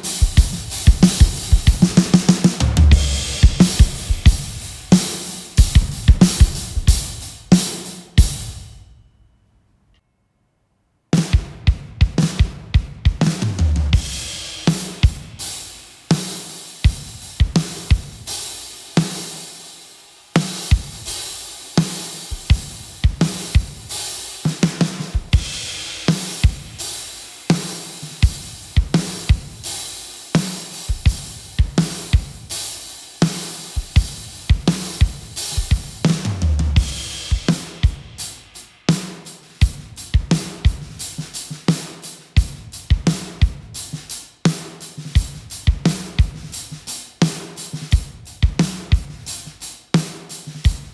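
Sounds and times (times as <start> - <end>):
crash cymbal: 0.0 - 9.0, 14.0 - 24.6, 25.2 - 39.6
drum kit groove: 0.0 - 9.1, 11.2 - 50.9.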